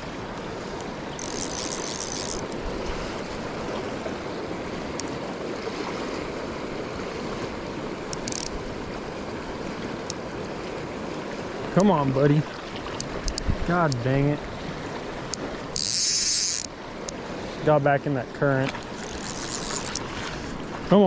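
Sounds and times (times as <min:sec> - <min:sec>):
river water rushing: 0:00.0 - 0:21.0
fishing reel drag zipping: 0:01.1 - 0:02.6, 0:08.1 - 0:08.6, 0:15.3 - 0:16.7, 0:18.9 - 0:20.2.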